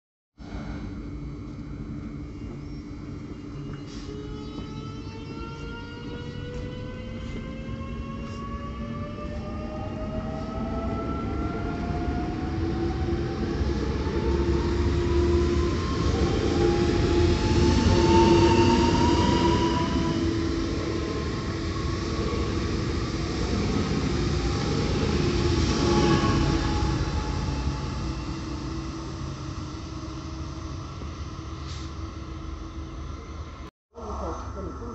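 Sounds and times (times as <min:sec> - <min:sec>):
rising whine: 0:00.4 - 0:34.9
train rail rumble: 0:00.4 - 0:34.9.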